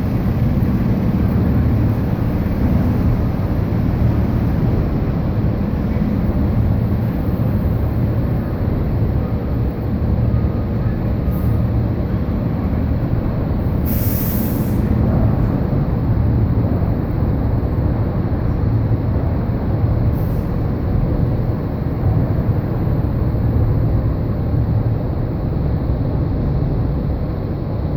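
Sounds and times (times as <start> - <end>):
diesel engine rumbling: 0.0 - 27.9
air brakes hissing: 13.8 - 15.1, 20.1 - 20.8.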